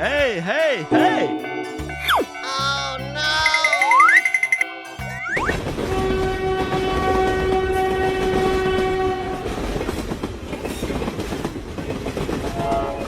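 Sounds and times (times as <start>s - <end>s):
train rumbling on rails: 5.5s - 13.0s
train horn blast: 5.6s - 9.8s, 12.6s - 13.0s.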